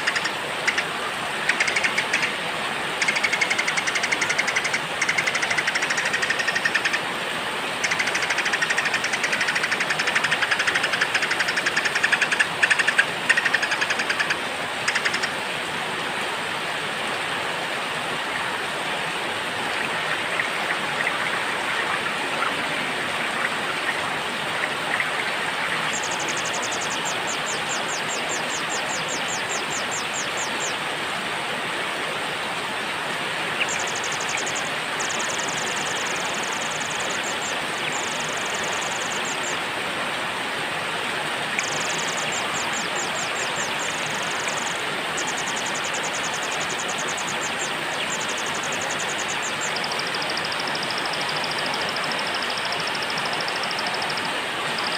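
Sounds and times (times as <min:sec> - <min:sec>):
small birds chirping: 0:00.0 - 0:00.8.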